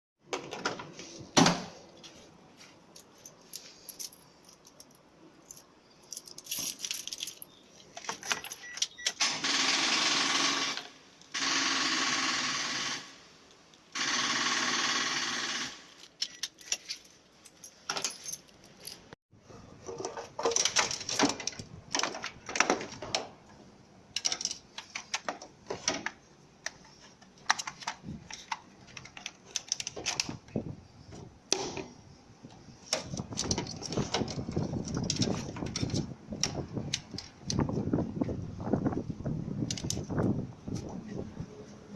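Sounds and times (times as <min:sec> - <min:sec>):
hard objects clicking and clattering: 0:19.9 - 0:30.5.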